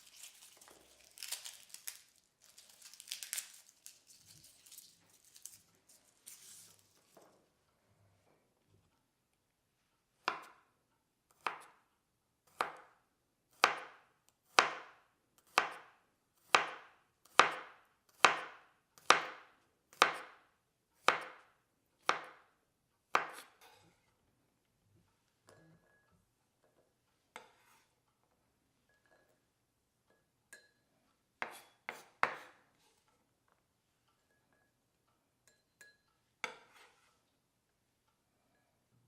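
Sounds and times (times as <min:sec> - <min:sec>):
knife chopping on cutting board: 0:10.2 - 0:10.6, 0:11.4 - 0:11.8, 0:12.5 - 0:12.9, 0:13.5 - 0:20.4, 0:21.0 - 0:21.4, 0:22.0 - 0:22.4, 0:23.1 - 0:23.8, 0:31.4 - 0:32.6.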